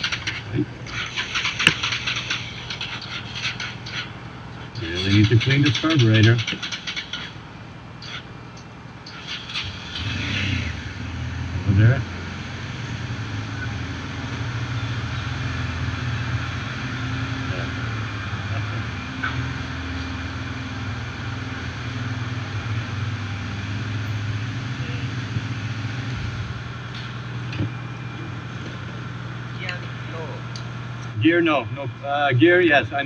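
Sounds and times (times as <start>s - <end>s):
continuous hiss: 11.0s - 33.0s.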